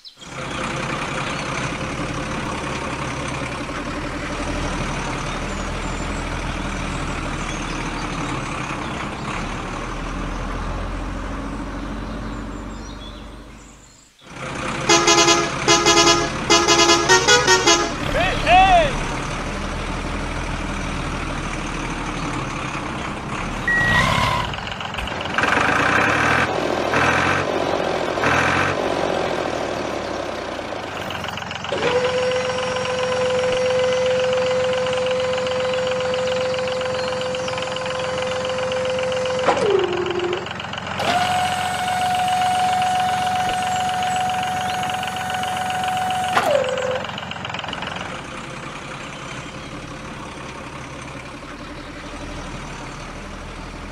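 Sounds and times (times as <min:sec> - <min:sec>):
truck engine running: 0:00.0 - 0:53.9
hydraulic tipper whine: 0:14.3 - 0:53.9
short beep: 0:23.7 - 0:24.1.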